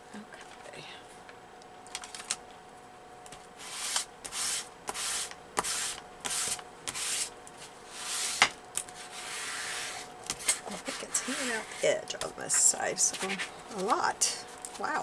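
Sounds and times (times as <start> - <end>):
paper being rubbed: 3.6 - 7.3, 7.9 - 8.4, 9.0 - 10.1, 10.7 - 11.8.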